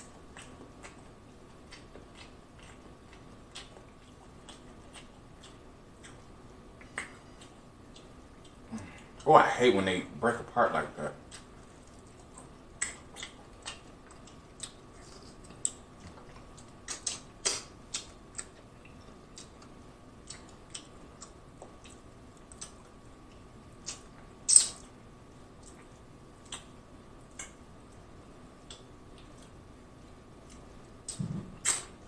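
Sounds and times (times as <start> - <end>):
wet chewing and mouth smacks: 0.0 - 9.3, 11.2 - 25.0, 25.6 - 28.0, 28.6 - 29.6, 30.4 - 32.0.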